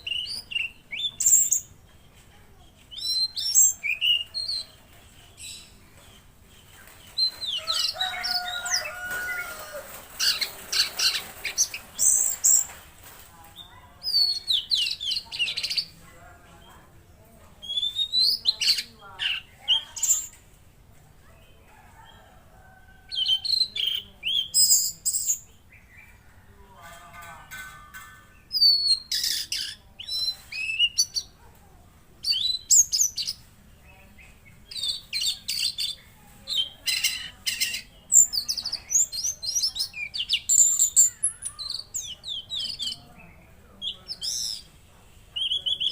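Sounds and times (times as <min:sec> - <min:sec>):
songbird chirping and whistling: 0:00.0 - 0:05.8, 0:17.6 - 0:20.4, 0:28.5 - 0:31.4, 0:32.2 - 0:33.5, 0:45.4 - 0:45.9.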